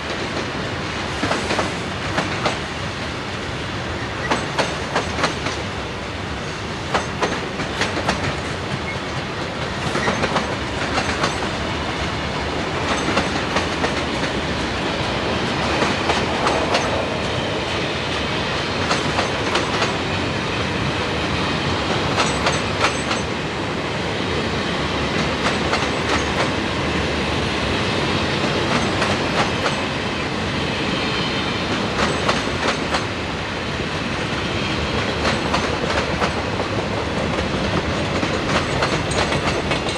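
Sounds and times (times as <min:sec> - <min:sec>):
freight train cars rumbling: 0:00.0 - 0:39.9
wheels clacking over rail joints: 0:04.2 - 0:05.6, 0:06.9 - 0:17.7, 0:21.9 - 0:23.3, 0:25.2 - 0:26.6, 0:34.9 - 0:39.9.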